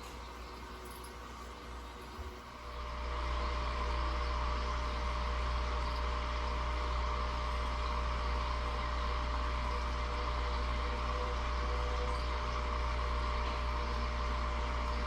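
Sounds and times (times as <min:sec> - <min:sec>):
faint steady higher tones: 0:00.0 - 0:03.2
low droning hum: 0:00.0 - 0:15.0.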